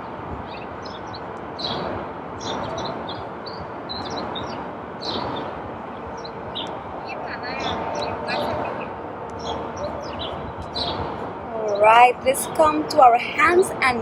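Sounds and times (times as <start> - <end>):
steady background rush: 0.0 - 14.0
small birds chirping: 2.4 - 12.7.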